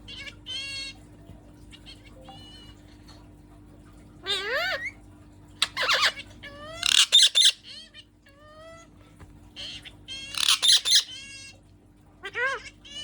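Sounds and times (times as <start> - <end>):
parrot squawking: 0.0 - 1.1, 4.2 - 5.0, 5.6 - 8.9, 9.6 - 11.6, 12.2 - 13.0.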